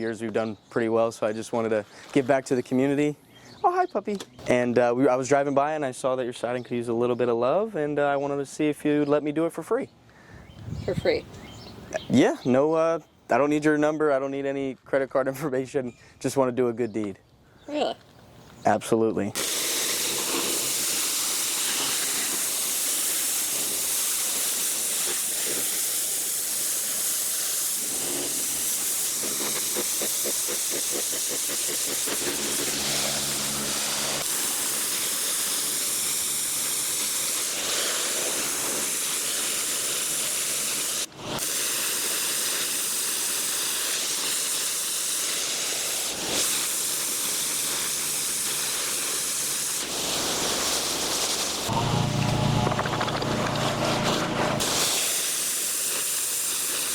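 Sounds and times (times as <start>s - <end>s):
pressure washer spraying water: 19.4s - 56.9s
engine hum: 51.7s - 54.8s.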